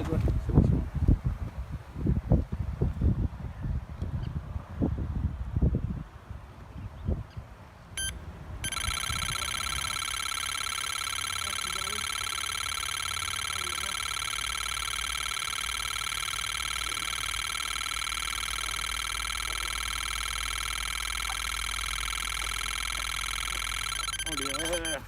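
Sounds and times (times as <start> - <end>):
bite alarm high-pitched tone: 8.0 - 25.0.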